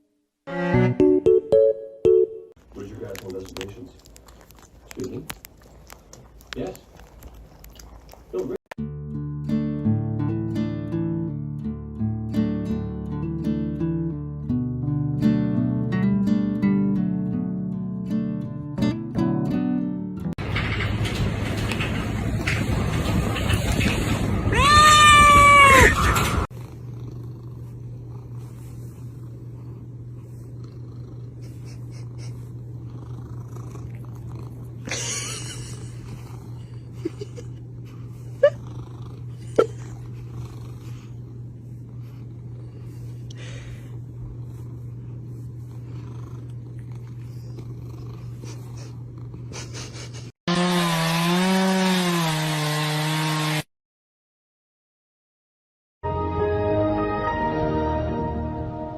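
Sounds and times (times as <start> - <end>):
cat purring: 26.5 - 34.9, 35.6 - 49.5.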